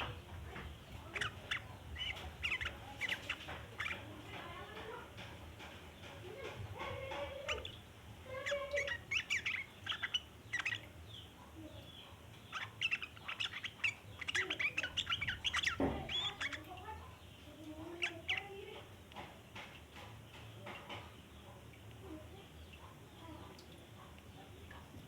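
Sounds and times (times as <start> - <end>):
bird chattering call: 1.1 - 4.2, 6.9 - 10.9, 12.4 - 17.0.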